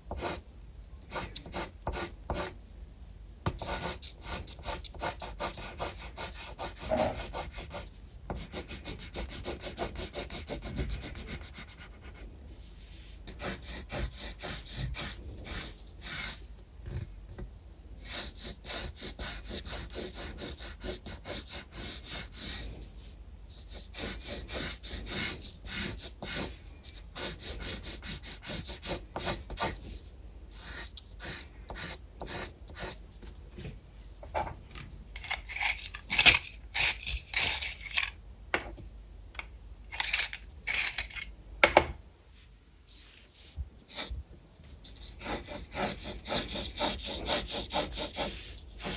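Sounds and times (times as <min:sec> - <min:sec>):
pencil scratching on paper: 0:00.1 - 0:00.4, 0:01.1 - 0:02.6, 0:03.5 - 0:16.4, 0:18.0 - 0:22.7, 0:23.5 - 0:33.0, 0:44.8 - 0:48.9.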